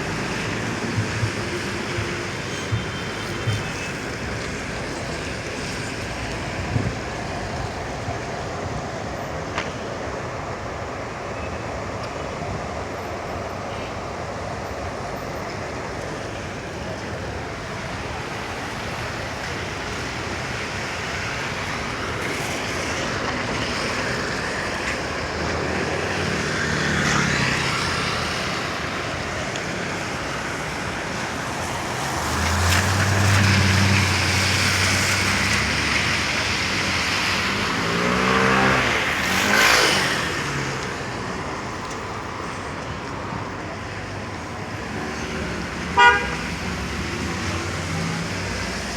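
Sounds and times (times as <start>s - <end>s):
tyres on wet pavement: 0.0s - 48.9s
vehicle engines passing: 14.0s - 48.9s.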